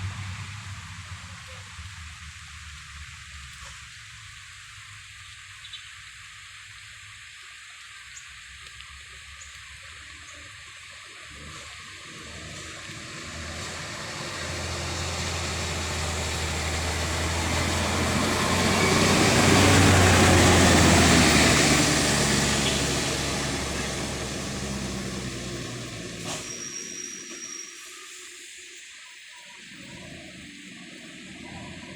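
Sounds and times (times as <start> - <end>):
diesel truck engine: 0.0 - 3.1, 11.2 - 27.2
tyres hissing on wet road: 0.0 - 31.9.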